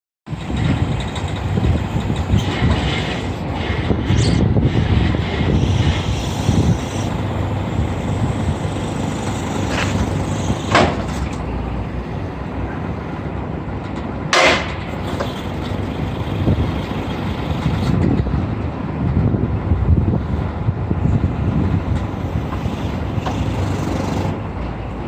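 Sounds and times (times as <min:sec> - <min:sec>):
truck diesel engine running: 0:00.3 - 0:13.7, 0:14.8 - 0:25.0
short air hisses: 0:04.1 - 0:11.4, 0:21.4 - 0:24.4.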